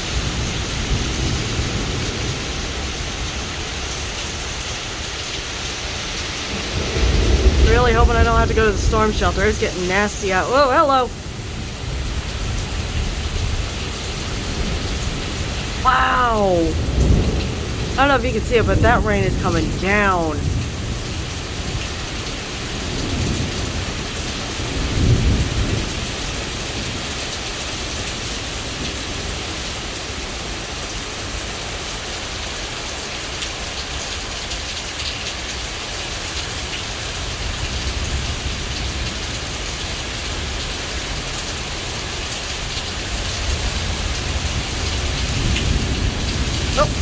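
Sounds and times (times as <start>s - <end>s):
heavy rain pouring: 0.0s - 47.0s
thunder rumbling: 6.8s - 10.2s.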